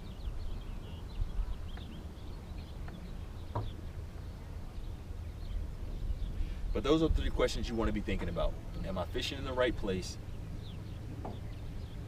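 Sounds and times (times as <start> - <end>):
wind buffeting microphone: 0.0 - 12.0
light knock: 2.8 - 3.8.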